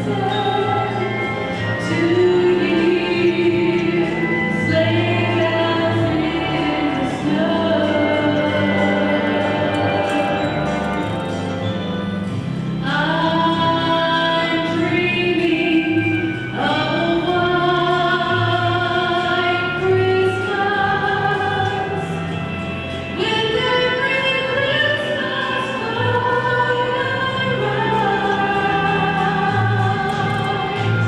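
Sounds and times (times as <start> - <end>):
choir singing long held notes: 0.0 - 11.2.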